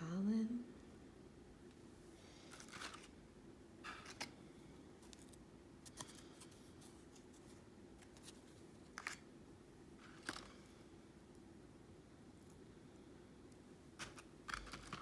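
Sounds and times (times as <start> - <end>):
dry objects rustling: 2.2 - 3.2, 14.0 - 15.0.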